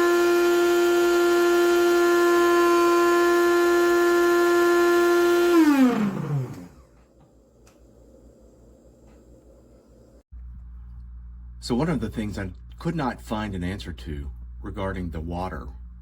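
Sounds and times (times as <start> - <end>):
coffee grinder motor whine: 0.0 - 7.0.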